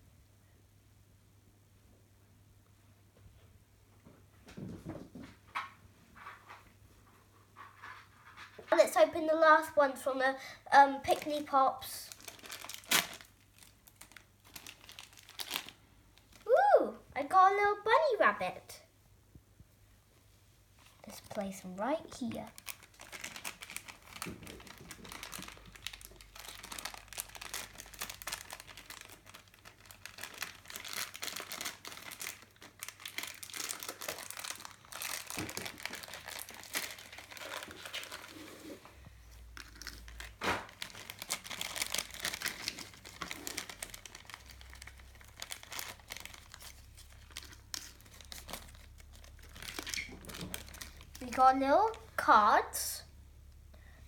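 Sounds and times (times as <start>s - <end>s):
toy packaging crinkling: 10.8s - 16.5s, 21.1s - 38.4s, 39.4s - 52.2s.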